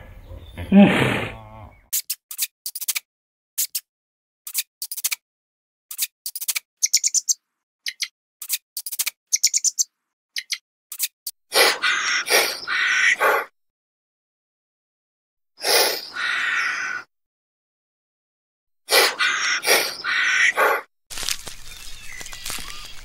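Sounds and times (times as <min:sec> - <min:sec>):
rough rustling: 0:21.1 - 0:23.0.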